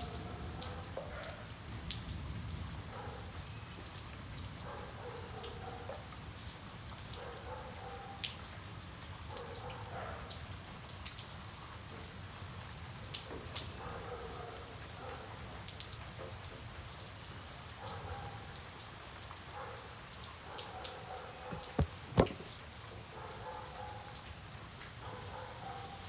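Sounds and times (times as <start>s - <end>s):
rain falling: 0.0s - 26.0s
sharp knocks: 21.5s - 22.5s
drops ticking on a hard surface: 21.5s - 22.6s.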